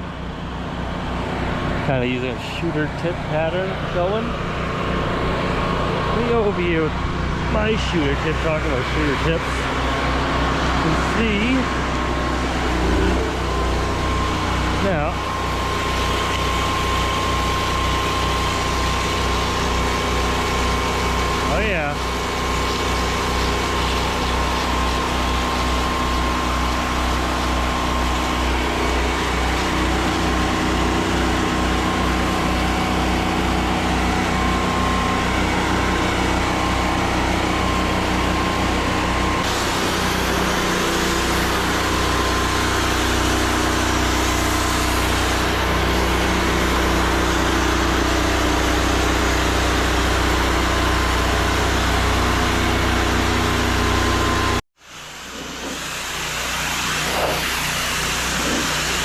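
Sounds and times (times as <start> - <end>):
engine running steadily: 0.0 - 59.0
water spray hissing: 13.6 - 30.2, 39.5 - 46.9, 55.0 - 59.0.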